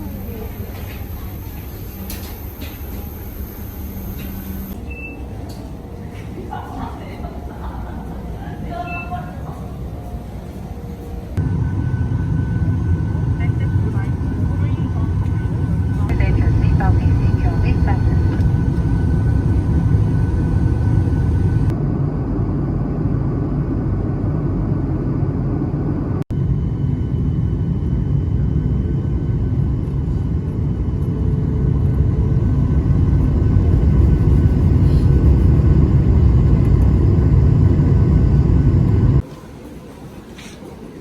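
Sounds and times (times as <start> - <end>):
faint hum: 0.0 - 41.0
vehicle rumble: 10.7 - 39.3.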